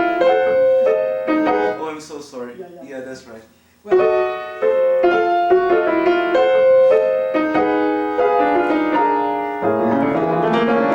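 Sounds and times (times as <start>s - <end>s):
piano notes and chords: 0.0s - 2.0s, 3.9s - 10.9s.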